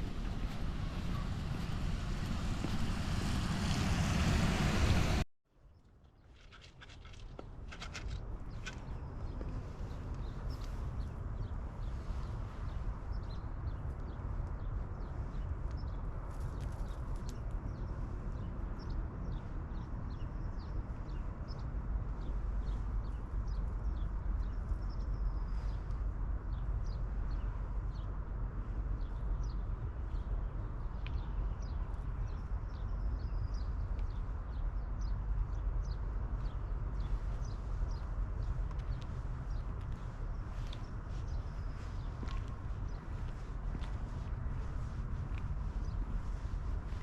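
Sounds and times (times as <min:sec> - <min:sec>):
rain hissing: 0:00.0 - 0:05.2
low rumble: 0:00.0 - 0:05.3.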